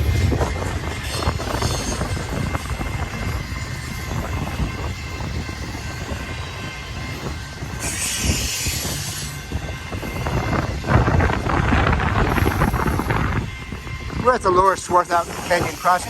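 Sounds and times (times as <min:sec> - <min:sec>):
freight train rumbling past: 0:00.0 - 0:16.0
strong wind: 0:00.0 - 0:16.0
high hiss from train: 0:07.8 - 0:09.5.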